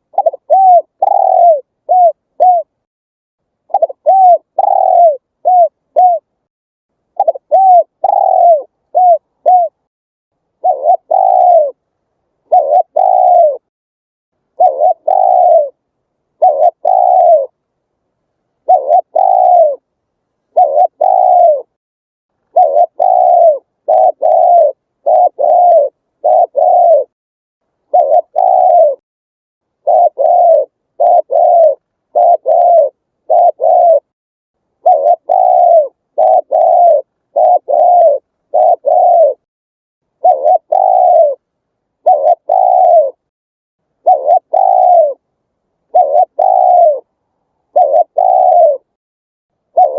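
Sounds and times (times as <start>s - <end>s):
dove cooing: 0.0s - 2.8s, 3.7s - 6.3s, 7.2s - 9.9s, 10.6s - 11.8s, 12.4s - 13.7s, 14.5s - 15.8s, 16.4s - 17.6s, 18.6s - 19.9s, 20.5s - 21.8s, 22.5s - 27.2s, 27.9s - 29.0s, 29.8s - 34.1s, 34.8s - 39.5s, 40.2s - 43.3s, 44.0s - 45.2s, 45.9s - 49.0s.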